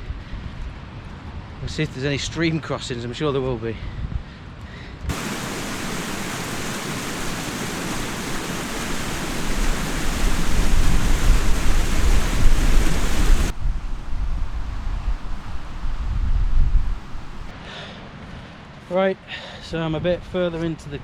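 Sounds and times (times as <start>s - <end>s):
rushing stream water: 5.1s - 14.2s, 16.6s - 17.5s.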